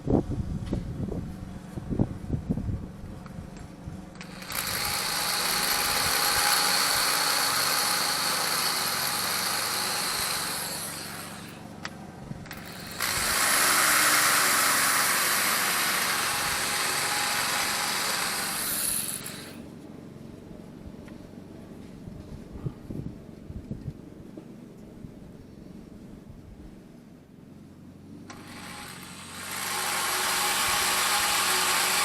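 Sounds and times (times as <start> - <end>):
rotary grinder whining: 4.1 - 19.7, 28.3 - 32.0.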